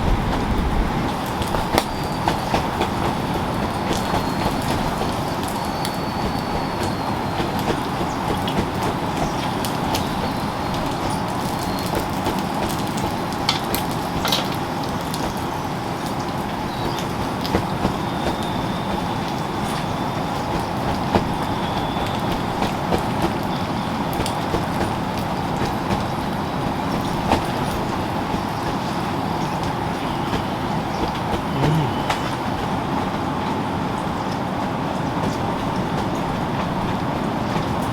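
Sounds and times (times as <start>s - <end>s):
steady rain falling: 0.0s - 37.9s.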